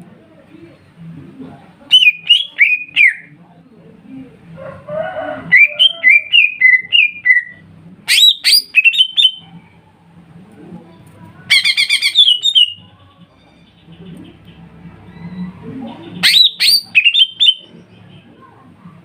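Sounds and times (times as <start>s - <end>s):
bird whistling song: 5.6s - 9.4s, 11.5s - 12.8s, 16.2s - 17.7s.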